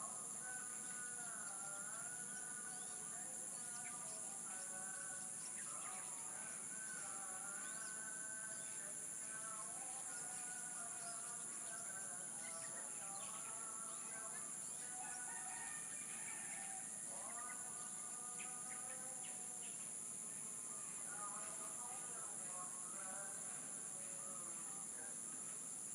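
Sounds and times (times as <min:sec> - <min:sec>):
small birds chirping: 0:00.0 - 0:15.7
high insect drone: 0:00.0 - 0:25.9
roosters crowing: 0:15.0 - 0:17.3.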